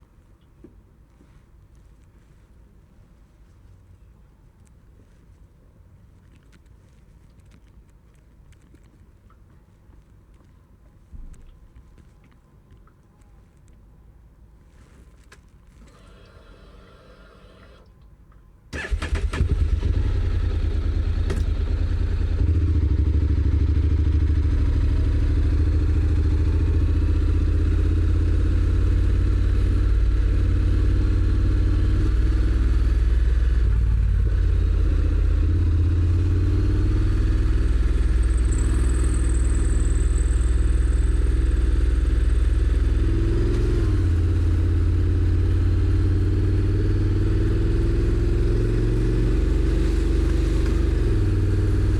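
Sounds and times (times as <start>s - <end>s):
motorcycle engine starting and running: 15.8s - 17.9s, 18.7s - 51.9s.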